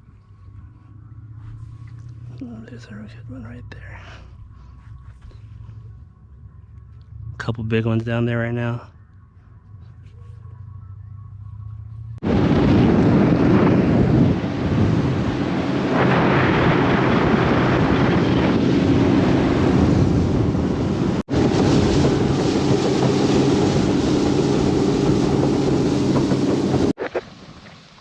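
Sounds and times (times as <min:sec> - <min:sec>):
boat motor running: 0:08.9 - 0:27.1
wind buffeting microphone: 0:12.2 - 0:27.0.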